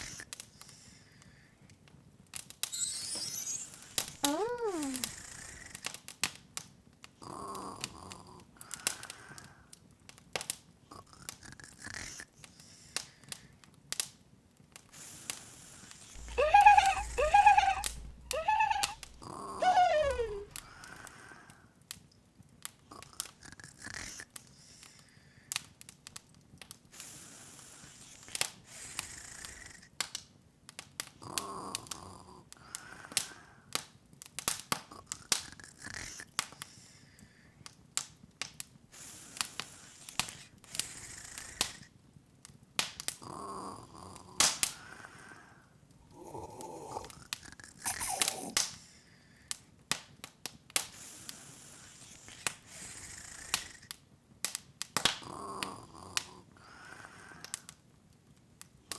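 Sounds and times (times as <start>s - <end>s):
falling whistle-like tone: 2.7s - 4.4s, 16.2s - 20.7s
open fire crackling: 48.3s - 58.9s.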